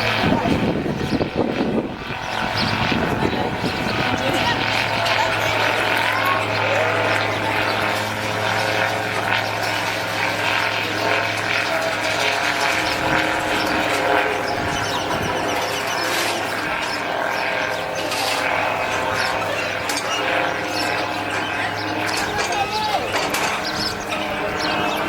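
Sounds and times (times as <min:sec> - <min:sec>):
small engine and propeller droning: 0:00.0 - 0:25.0.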